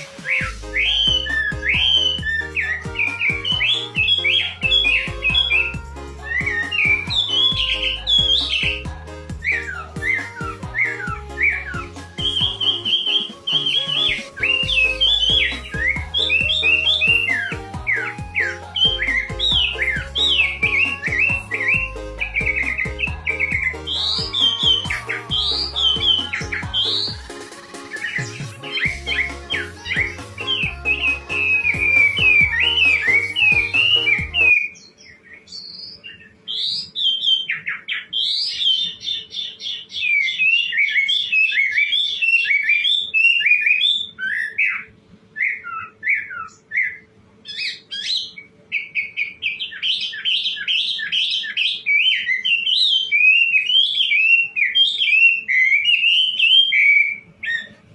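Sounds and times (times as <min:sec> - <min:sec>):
bird singing whistled phrases: 0:00.0 - 0:27.2, 0:27.9 - 0:57.9
background music with beat: 0:00.0 - 0:34.6.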